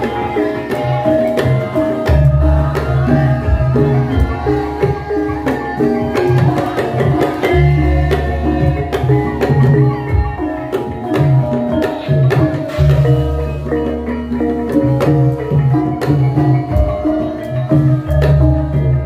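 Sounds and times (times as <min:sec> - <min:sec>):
hand-drum strokes: 0:00.0 - 0:19.0
struck metallophone melody: 0:00.0 - 0:19.0.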